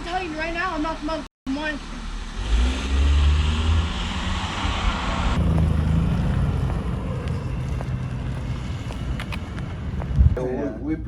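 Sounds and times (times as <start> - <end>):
car engine rumbling: 1.6 - 10.4
wind buffeting microphone: 5.4 - 10.4.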